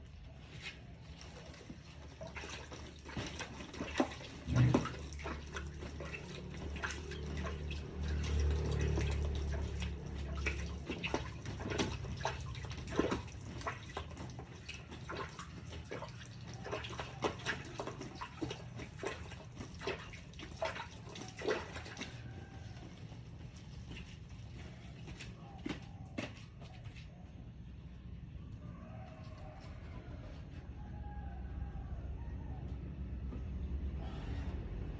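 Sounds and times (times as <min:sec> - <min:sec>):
water splashing and dripping: 0:00.0 - 0:27.1.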